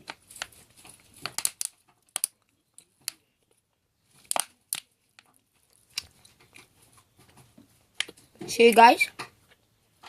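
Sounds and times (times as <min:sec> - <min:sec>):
plastic bottle crackling: 0:00.0 - 0:07.4.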